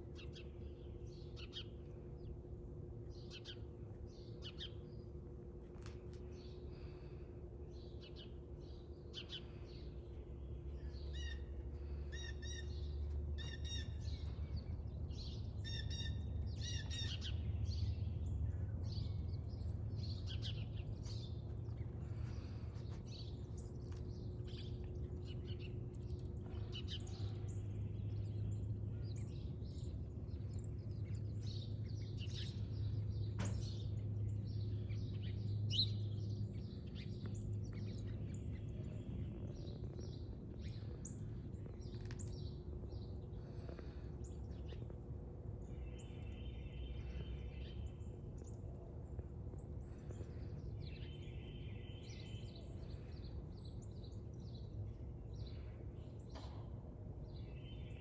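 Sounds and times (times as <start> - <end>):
small birds chirping and singing: 0.0 - 58.0
low rumble: 14.0 - 46.3.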